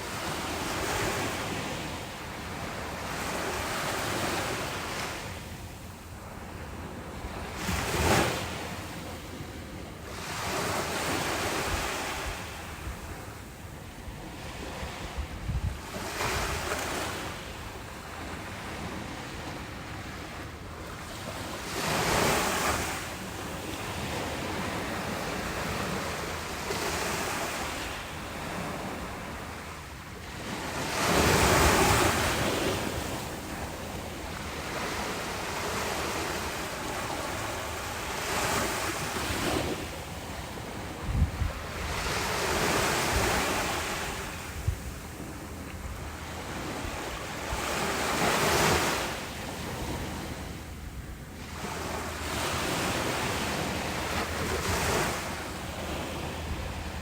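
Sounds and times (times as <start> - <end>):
ocean waves breaking: 0.0 - 15.2, 15.8 - 57.0
wind buffeting microphone: 14.3 - 17.3, 38.2 - 49.0.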